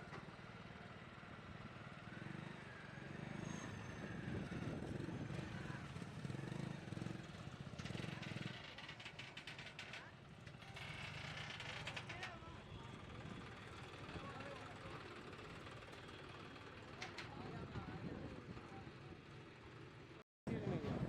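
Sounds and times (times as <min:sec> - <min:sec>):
tractor diesel engine running: 0:04.1 - 0:20.2.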